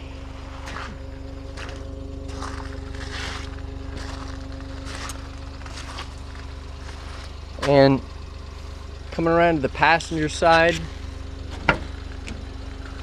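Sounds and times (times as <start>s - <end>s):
small engine idling: 0.0s - 13.0s
short scuffing noises: 0.5s - 1.0s, 1.6s - 7.8s.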